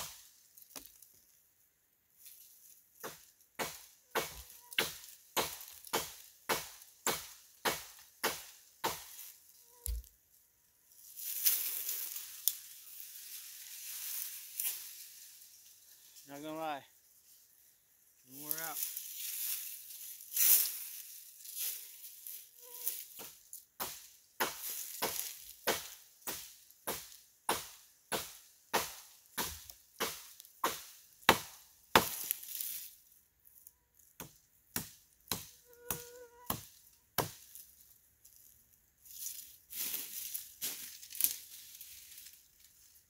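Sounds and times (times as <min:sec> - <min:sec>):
wood being chopped by hand: 0:03.0 - 0:09.2, 0:23.2 - 0:32.4, 0:34.2 - 0:37.5.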